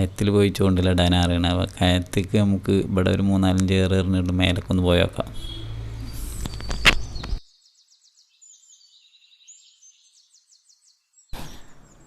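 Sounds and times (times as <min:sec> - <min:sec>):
bird chirps and trills: 0:05.3 - 0:12.0.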